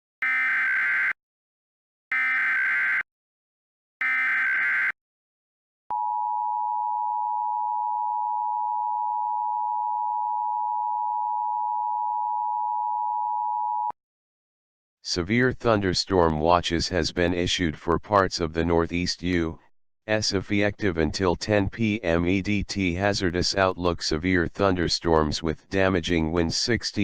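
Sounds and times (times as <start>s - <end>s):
buzzing data bursts: 4.0s - 4.9s.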